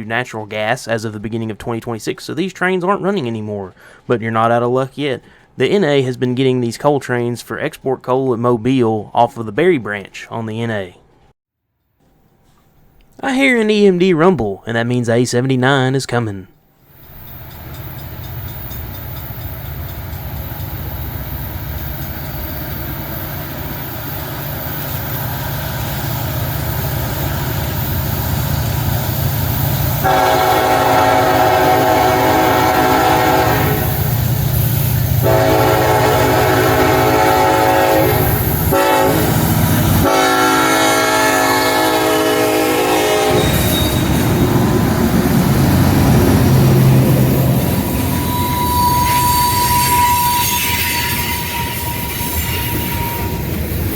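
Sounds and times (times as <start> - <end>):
train wheel and rail noise: 16.8 - 53.9
diesel locomotive engine rumbling: 16.9 - 53.9
train air horn blasts: 30.0 - 34.3, 35.1 - 53.9.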